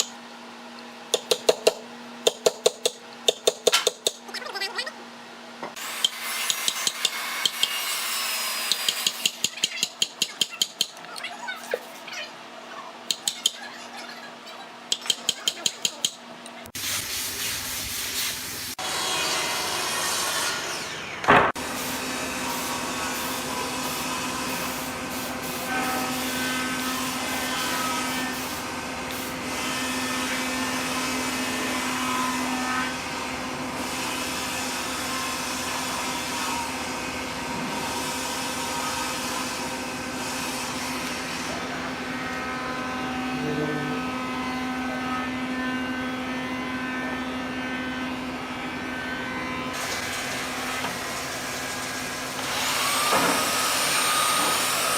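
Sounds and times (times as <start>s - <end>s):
power tool motor running: 49.7s - 54.9s.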